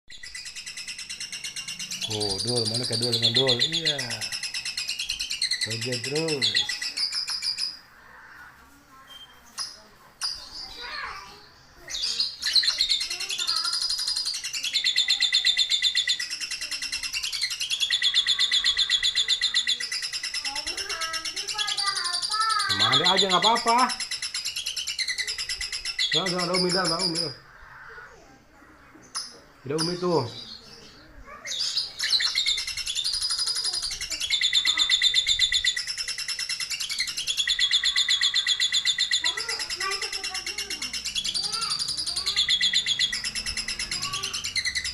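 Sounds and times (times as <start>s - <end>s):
lovebird chattering trill: 0.1s - 8.4s, 9.1s - 28.2s, 28.9s - 44.9s.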